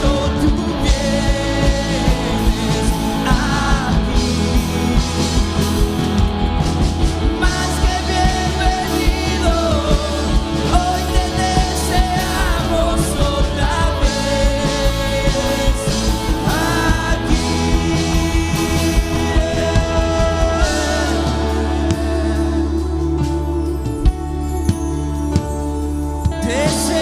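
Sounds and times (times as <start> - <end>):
person singing: 0.0 - 6.1, 7.2 - 24.8, 26.3 - 27.0
bass: 0.0 - 27.0
drum beat: 0.1 - 22.3.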